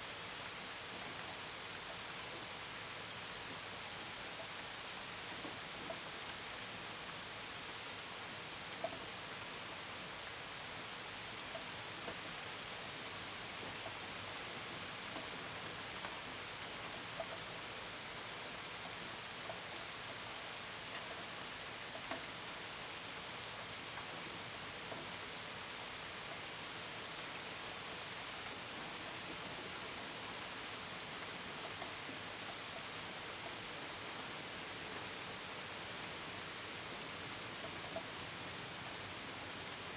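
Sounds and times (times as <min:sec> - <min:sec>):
gentle rain falling: 0:00.0 - 0:39.9
crickets chirping: 0:32.1 - 0:37.9.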